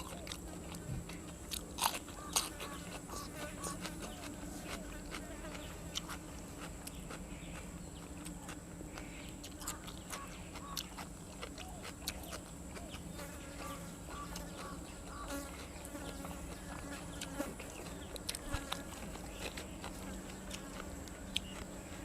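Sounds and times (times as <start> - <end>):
chewing and mouth noises: 0.0 - 22.0.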